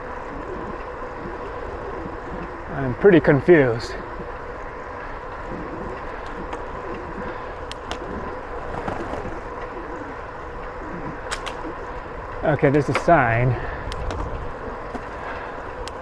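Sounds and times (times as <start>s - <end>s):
bicycle tyres rolling on trail: 0.0s - 16.0s.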